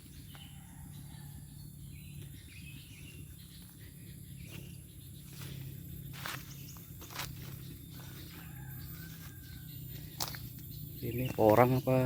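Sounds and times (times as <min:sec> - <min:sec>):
bird chirps: 0:00.0 - 0:12.0
high insect drone: 0:03.3 - 0:12.0.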